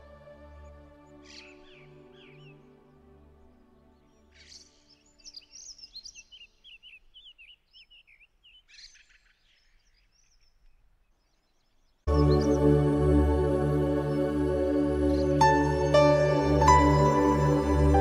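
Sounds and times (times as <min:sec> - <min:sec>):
soft background music: 0:00.0 - 0:06.9, 0:12.1 - 0:18.0
small birds twittering: 0:00.6 - 0:12.8
loud music: 0:12.1 - 0:18.0.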